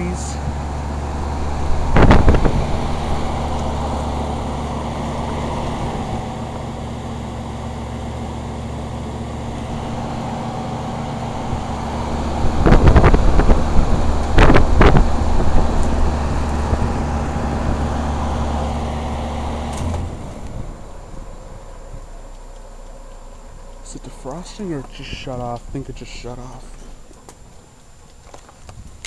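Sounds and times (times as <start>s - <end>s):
heat pump humming: 0.0s - 29.0s
wind buffeting microphone: 0.4s - 7.9s, 9.4s - 18.7s, 28.6s - 29.0s.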